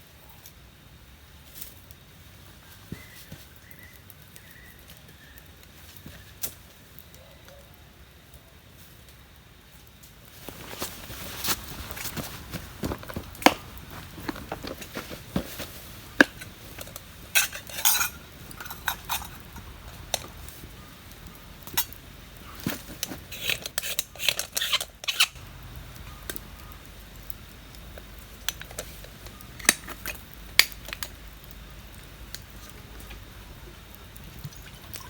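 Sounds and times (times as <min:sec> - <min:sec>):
metal cookware clinking and scraping: 0:16.2 - 0:20.0.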